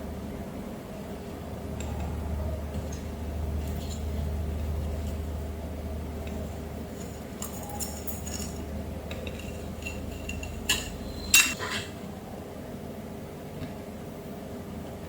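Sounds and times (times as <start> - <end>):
low steady hum: 0.0 - 15.0
small hard objects clinking: 6.9 - 11.5.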